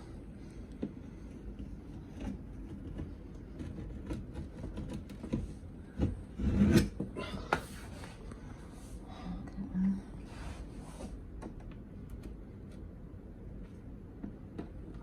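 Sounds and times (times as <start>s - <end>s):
small knocks and creaks: 0.7s - 7.6s.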